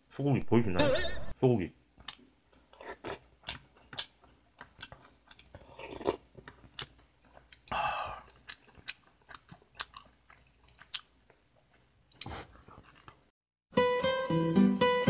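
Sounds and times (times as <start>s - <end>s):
person chewing food: 2.0s - 13.3s
breathy noise: 7.6s - 8.4s.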